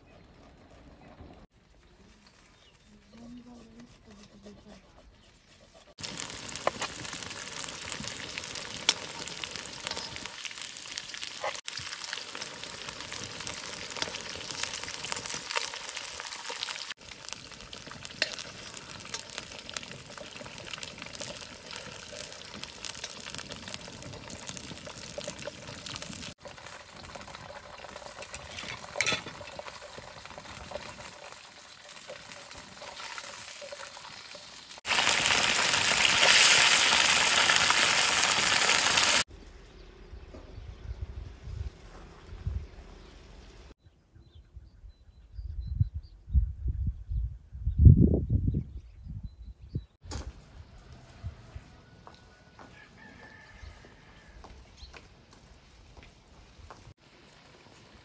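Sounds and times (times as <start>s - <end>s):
chicken sizzling in hot oil: 5.9s - 39.3s, 56.8s - 58.0s.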